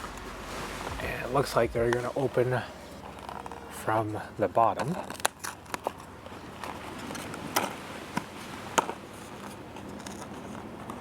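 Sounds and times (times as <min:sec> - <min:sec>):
packaging crackling and clicking: 0:04.8 - 0:07.7.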